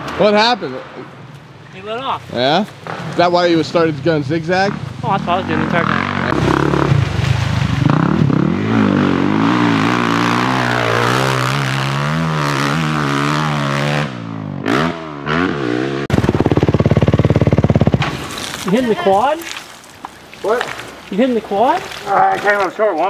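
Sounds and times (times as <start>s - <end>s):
dirt bike engine revving: 2.8s - 19.1s.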